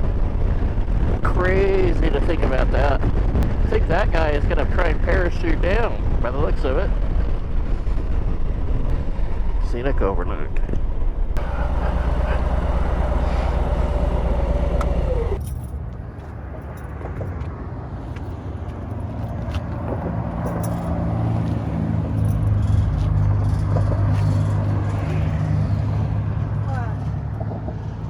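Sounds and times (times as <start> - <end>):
road and wind noise: 0.0 - 28.0
motorcycle engine running: 10.6 - 16.0.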